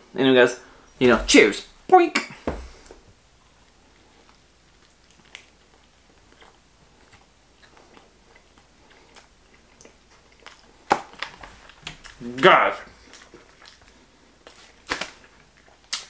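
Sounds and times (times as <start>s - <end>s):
person chewing: 4.0s - 12.2s, 13.0s - 14.7s.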